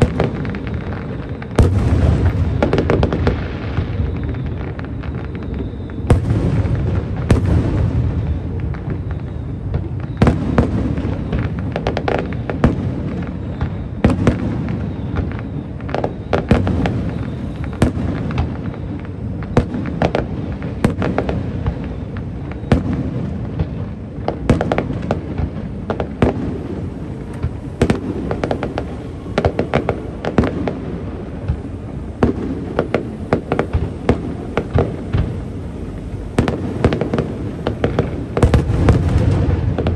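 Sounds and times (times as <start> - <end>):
fireworks bangs and crackles: 0.0 - 39.9
low rumble of booms: 1.6 - 4.6.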